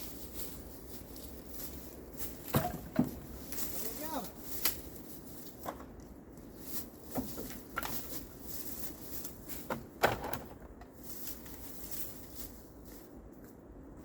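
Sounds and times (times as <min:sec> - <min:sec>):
knocks of things being handled: 0:02.5 - 0:03.4.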